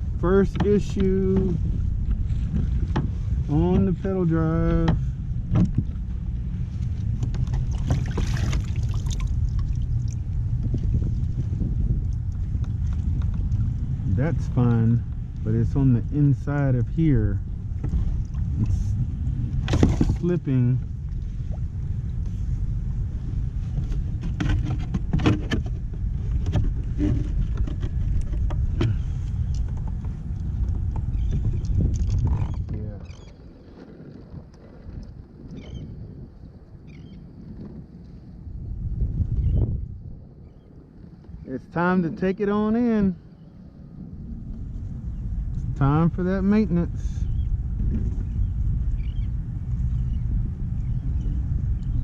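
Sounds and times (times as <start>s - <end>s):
water around kayak: 0.0s - 52.0s
wind rumble on microphone: 0.0s - 52.0s
rushing splash: 7.7s - 10.1s.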